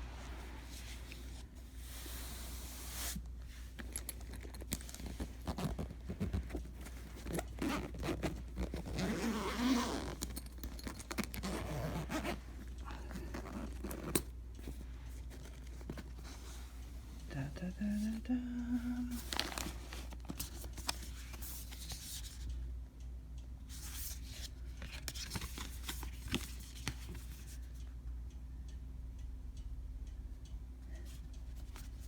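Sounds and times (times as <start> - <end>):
steady low hum: 0.0 - 25.2.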